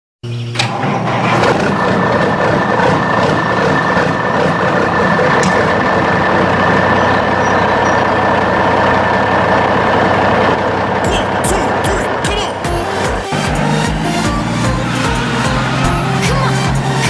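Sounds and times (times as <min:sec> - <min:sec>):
motor running with high whine: 0:00.2 - 0:17.0.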